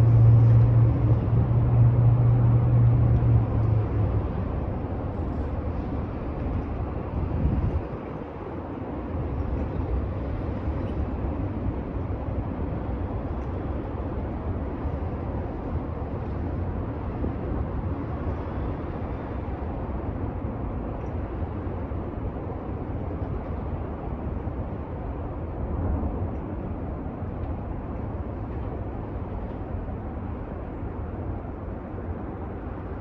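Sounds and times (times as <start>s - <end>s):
train rumbling past: 0.0s - 33.0s.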